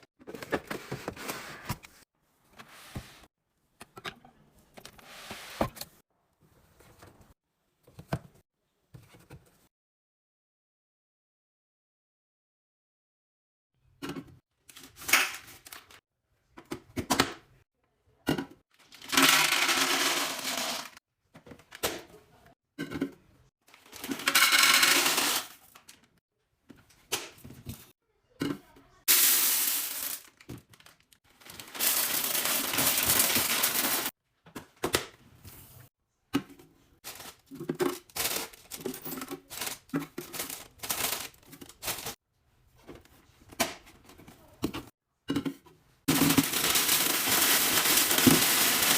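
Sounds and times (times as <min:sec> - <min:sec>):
packaging rustling: 0:29.8 - 0:34.1, 0:37.0 - 0:42.2, 0:46.1 - 0:48.9.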